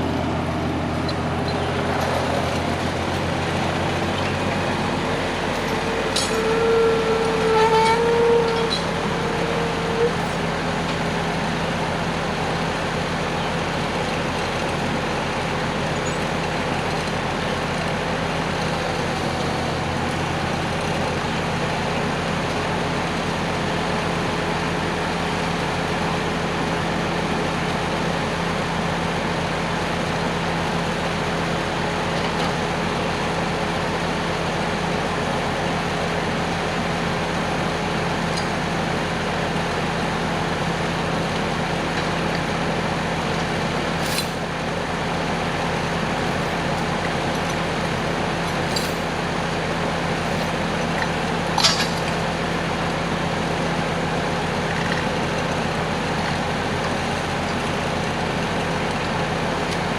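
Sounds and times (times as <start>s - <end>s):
engine running steadily: 0.0s - 59.9s
sharp metallic clinks: 48.7s - 49.1s.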